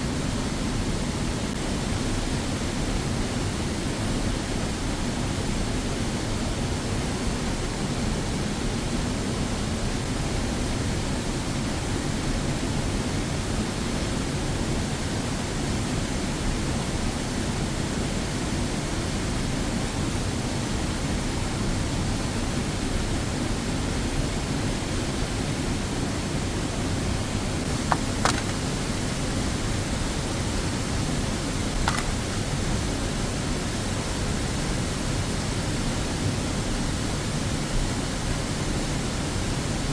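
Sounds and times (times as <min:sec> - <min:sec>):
brief clicks: 0:31.9 - 0:32.2.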